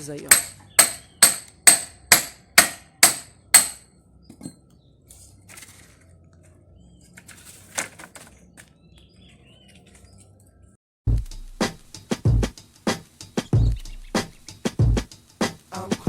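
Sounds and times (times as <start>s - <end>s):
hammer striking wood: 0.3s - 3.9s.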